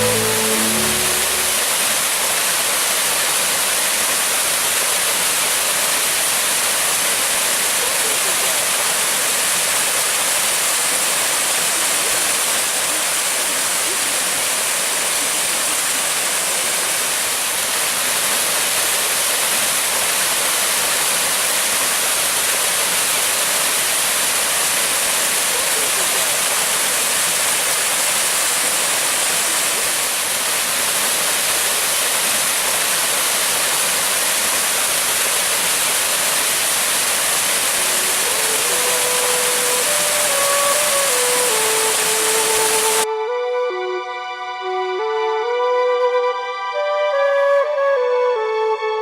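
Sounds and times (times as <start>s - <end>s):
faint music: 0.0s - 2.0s
waterfall rushing: 0.0s - 43.1s.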